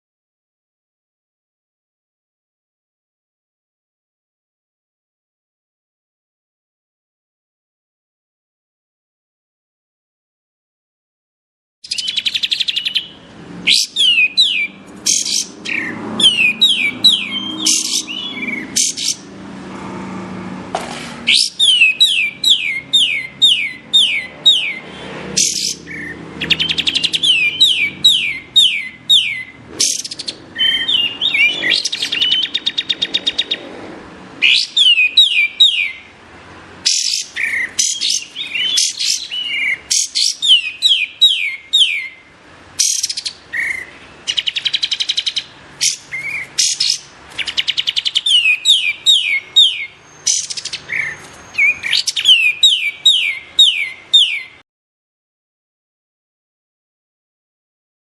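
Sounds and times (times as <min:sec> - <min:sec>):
songbird whistled notes: 0:11.8 - 0:13.1, 0:13.7 - 0:19.2, 0:21.3 - 0:33.6, 0:34.4 - 0:36.0, 0:36.9 - 0:42.2, 0:42.8 - 0:54.6.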